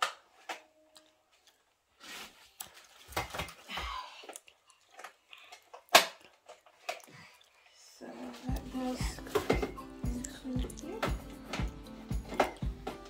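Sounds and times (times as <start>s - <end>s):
plastic parts clicking and knocking: 4.3s - 7.1s.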